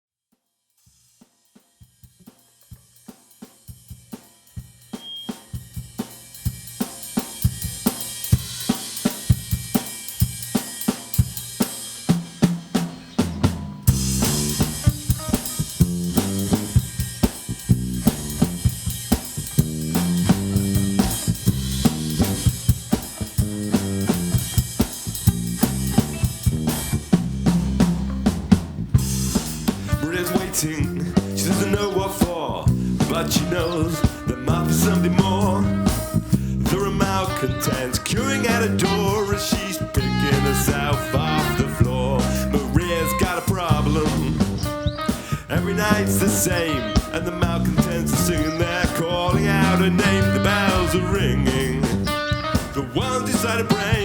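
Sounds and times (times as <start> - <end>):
drum kit beat: 1.2 - 54.0
live band playing: 6.4 - 54.0
low bass notes: 13.8 - 31.9, 32.5 - 54.0.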